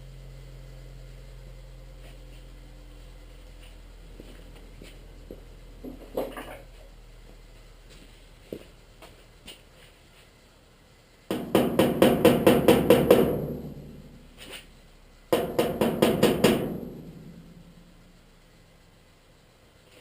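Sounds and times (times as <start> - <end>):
hammer striking sheet metal: 15.4 - 17.5.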